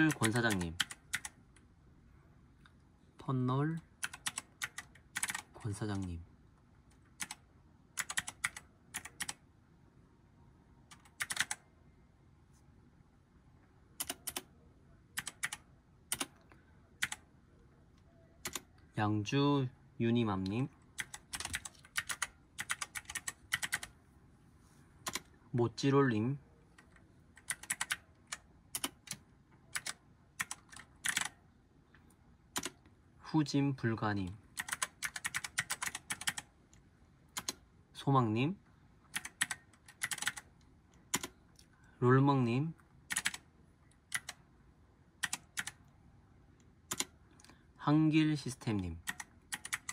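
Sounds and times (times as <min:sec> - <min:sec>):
keyboard typing: 0:00.0 - 0:01.6, 0:04.0 - 0:06.1, 0:06.9 - 0:09.4, 0:10.9 - 0:11.6, 0:14.0 - 0:14.5, 0:15.2 - 0:17.2, 0:18.4 - 0:18.8, 0:20.4 - 0:24.0, 0:25.0 - 0:25.4, 0:26.7 - 0:31.4, 0:32.5 - 0:32.9, 0:34.5 - 0:36.5, 0:37.3 - 0:37.6, 0:39.1 - 0:40.5, 0:41.1 - 0:41.4, 0:43.1 - 0:44.4, 0:45.2 - 0:45.8, 0:46.9 - 0:47.2, 0:49.0 - 0:49.9.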